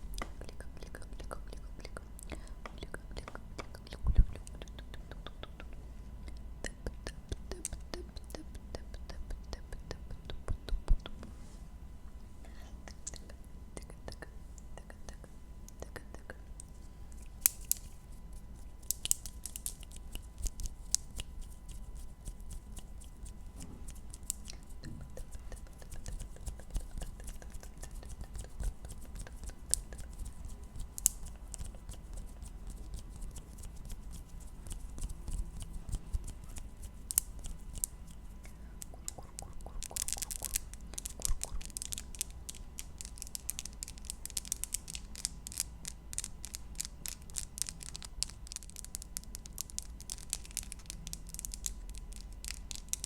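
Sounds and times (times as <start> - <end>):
mouth clicks and crackles: 12.9 - 53.0.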